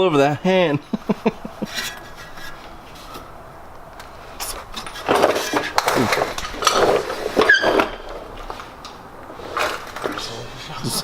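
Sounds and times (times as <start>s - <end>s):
metal tools clattering and scraping: 1.3s - 10.7s
faint workshop background: 4.0s - 10.6s.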